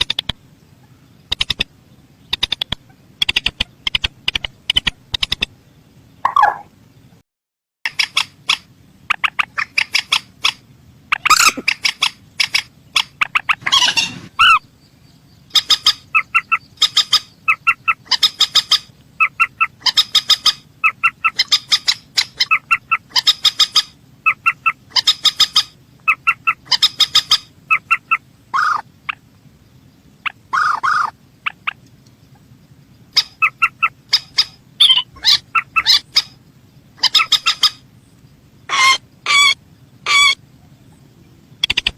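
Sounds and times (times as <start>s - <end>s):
rail bird clipped calls: 0.0s - 5.6s, 6.2s - 6.7s, 7.9s - 14.7s, 15.4s - 29.4s, 30.2s - 36.4s, 37.0s - 41.9s
longer lower bird cries: 7.9s - 29.2s, 30.2s - 31.8s, 33.1s - 36.4s, 38.6s - 40.9s.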